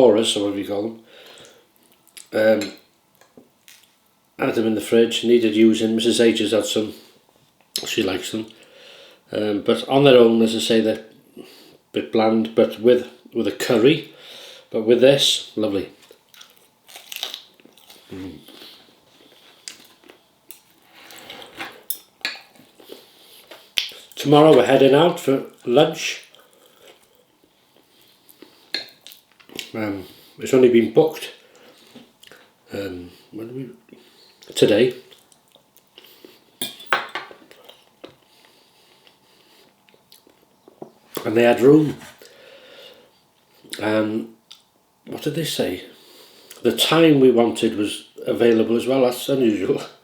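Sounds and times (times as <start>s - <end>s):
chewing: 16.0s - 21.6s
person humming: 18.1s - 18.4s
cutlery clinking on a plate: 36.6s - 37.4s.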